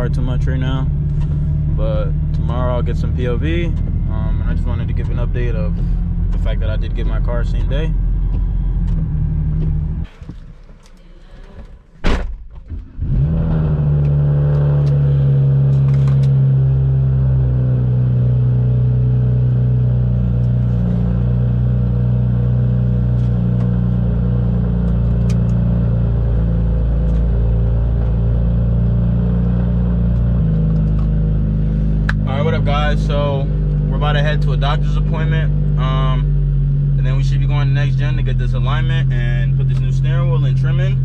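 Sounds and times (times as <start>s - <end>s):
car engine running steadily: 0.0s - 41.0s
loud thud: 12.0s - 13.0s.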